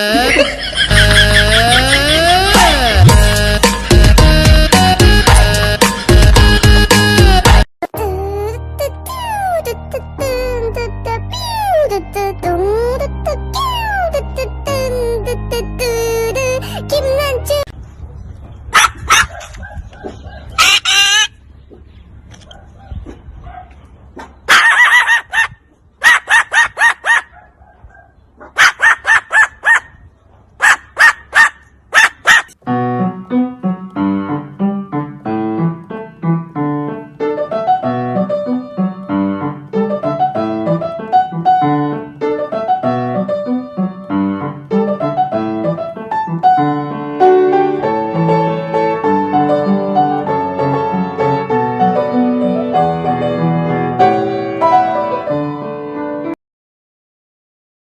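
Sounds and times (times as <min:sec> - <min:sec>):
piano music: 0:00.0 - 0:17.7, 0:32.6 - 0:56.4
shrill bird calls: 0:20.1 - 0:21.4.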